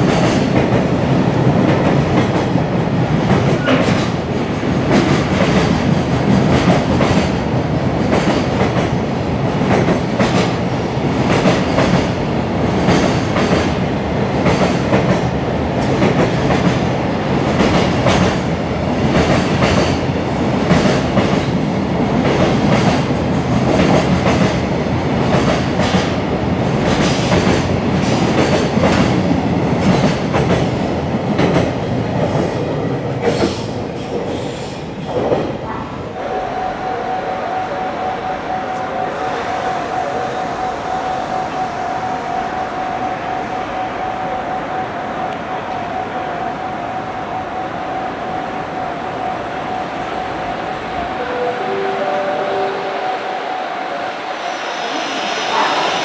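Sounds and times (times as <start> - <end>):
freight train rumble: 0.0 - 56.0
train wheels clacking over rail joints: 14.4 - 20.0, 22.2 - 26.2, 26.8 - 32.6, 33.2 - 35.5.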